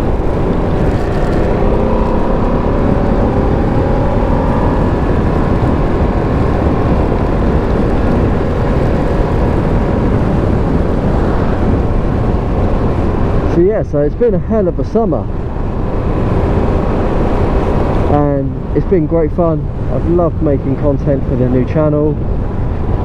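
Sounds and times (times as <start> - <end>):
motorcycle engine running: 0.0 - 13.5
wind rushing on microphone: 0.0 - 23.0.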